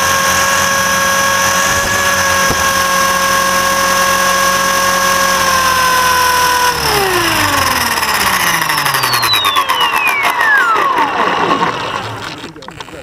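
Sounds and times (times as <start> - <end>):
model helicopter rotor whine: 0.0 - 12.6.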